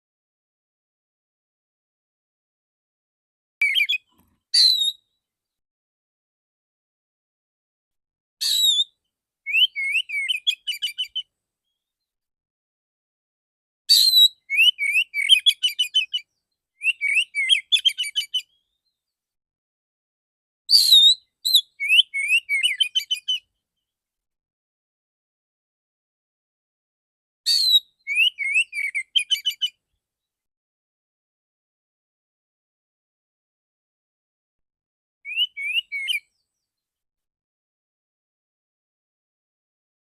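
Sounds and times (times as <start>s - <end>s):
magpie-robin singing: 3.6s - 5.0s, 8.4s - 11.3s, 13.9s - 18.8s, 20.7s - 23.5s, 27.5s - 29.8s, 35.2s - 36.5s.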